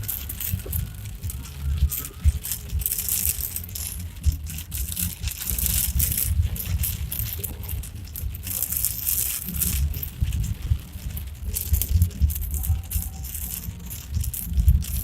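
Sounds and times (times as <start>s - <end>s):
loose things rattling and clinking: 0.0s - 15.0s
low road rumble: 0.0s - 15.0s.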